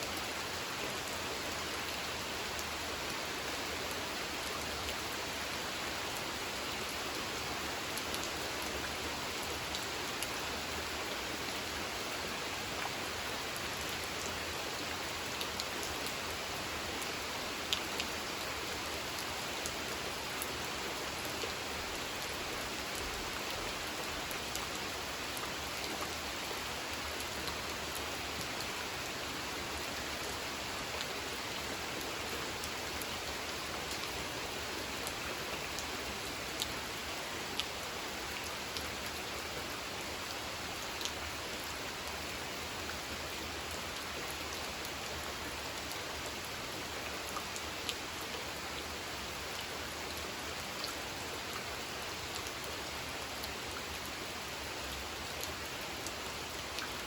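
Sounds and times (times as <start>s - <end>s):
rain falling on a pond: 0.0s - 57.0s.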